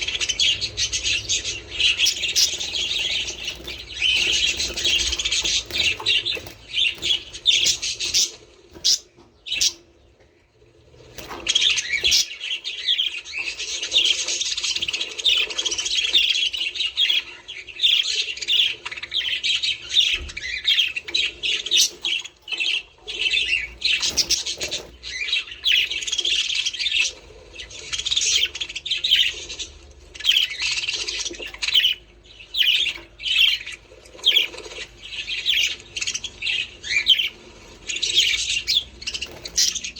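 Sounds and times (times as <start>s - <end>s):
budgerigars chattering: 0.0s - 10.1s, 11.1s - 39.9s.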